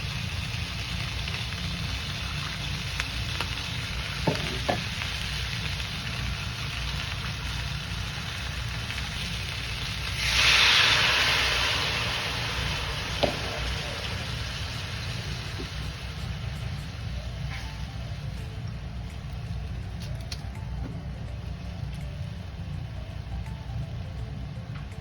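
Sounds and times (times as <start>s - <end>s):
chicken sizzling in pan: 0.0s - 20.4s.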